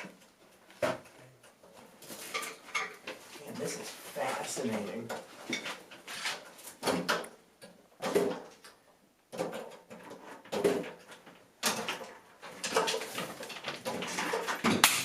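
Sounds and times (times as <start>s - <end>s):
hard objects knocking and scraping: 9.3s - 15.0s.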